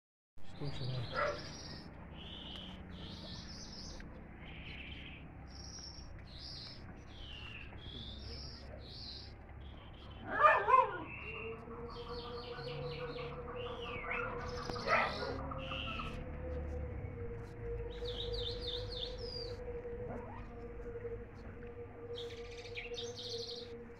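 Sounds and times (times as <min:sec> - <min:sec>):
songbirds chirping: 0:00.4 - 0:23.9
steady hum: 0:16.1 - 0:23.9.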